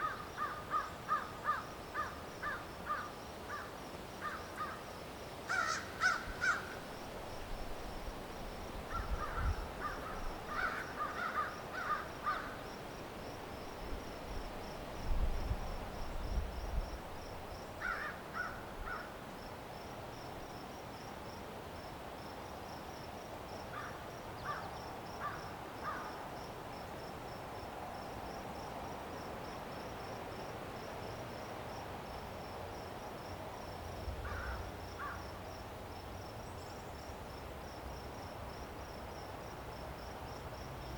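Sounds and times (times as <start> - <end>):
crows cawing: 0.0 - 4.8, 5.5 - 6.8, 8.9 - 12.6, 17.8 - 19.1, 23.8 - 24.6, 25.2 - 26.1, 34.2 - 35.2
cricket chirping: 0.0 - 40.9.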